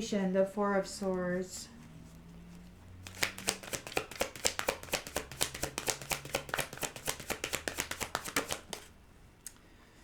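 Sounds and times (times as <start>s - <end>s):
cards being shuffled: 2.1s - 9.0s.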